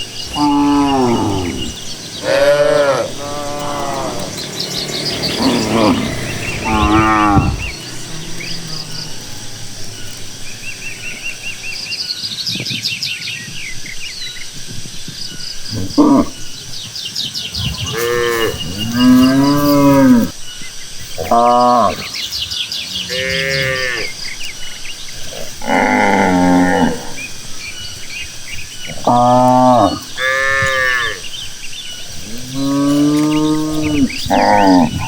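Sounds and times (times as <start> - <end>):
birds chirping and trilling: 0.0 - 35.0
cattle mooing: 0.2 - 11.7, 17.6 - 20.3, 21.2 - 22.3, 22.9 - 27.5, 28.9 - 31.4, 32.1 - 35.0.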